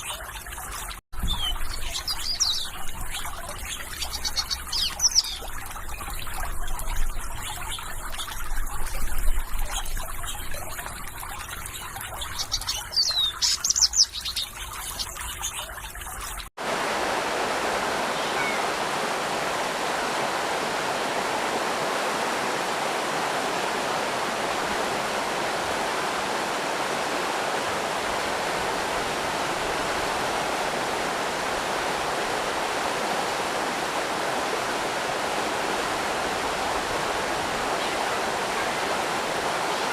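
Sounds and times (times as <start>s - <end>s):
birds chirping: 0.0s - 16.4s, 17.8s - 35.0s
water trickling and splashing: 0.0s - 39.9s
fast-flowing water rushing: 16.6s - 39.9s.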